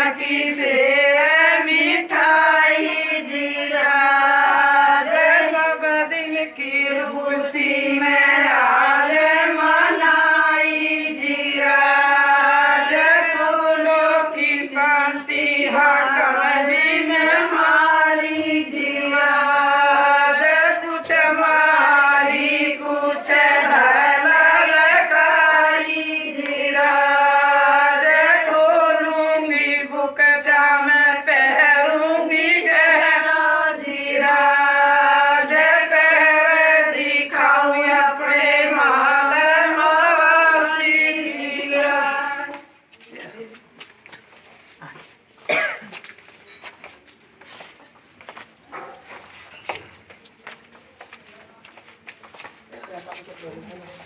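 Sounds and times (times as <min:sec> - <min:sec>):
women singing folk song: 0:00.0 - 0:42.8.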